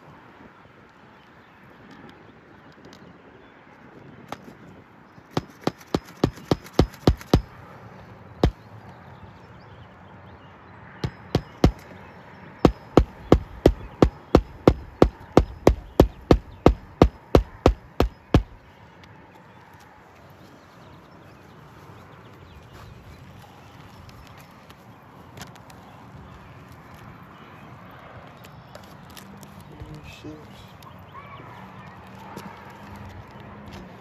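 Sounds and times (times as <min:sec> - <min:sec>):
hammer blows on a roof: 0:05.3 - 0:07.6, 0:08.4 - 0:08.6, 0:11.0 - 0:11.9, 0:12.6 - 0:18.6.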